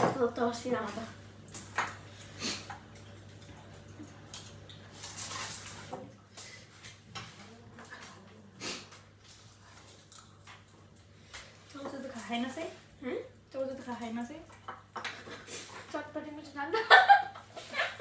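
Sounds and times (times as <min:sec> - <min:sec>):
person chewing: 0:09.8 - 0:10.8.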